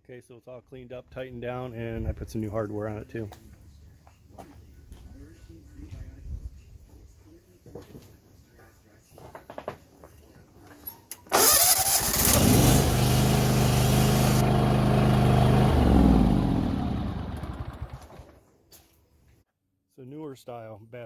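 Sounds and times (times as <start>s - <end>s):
starter cranking engine: 11.2s - 18.4s
small tractor engine running: 11.3s - 18.5s.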